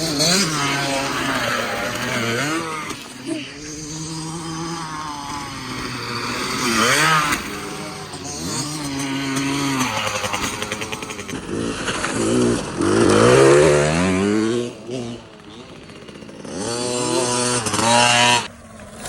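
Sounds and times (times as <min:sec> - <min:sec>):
two-stroke dirt bike engine revving: 0:00.0 - 0:19.0.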